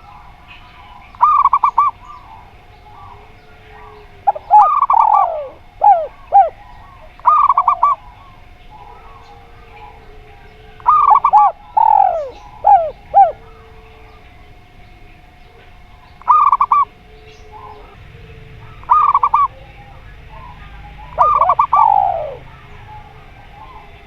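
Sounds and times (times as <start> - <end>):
doves cooing: 0.0 - 24.0.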